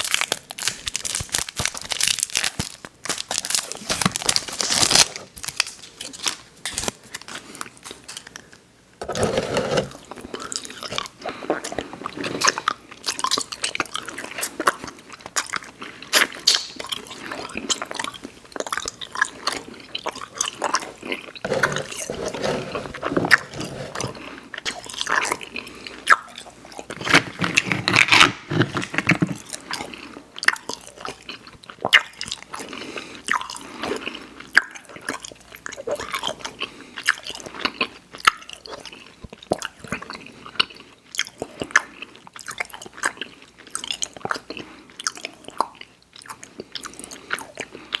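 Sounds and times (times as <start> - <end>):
person chewing candy: 0.0 - 48.0.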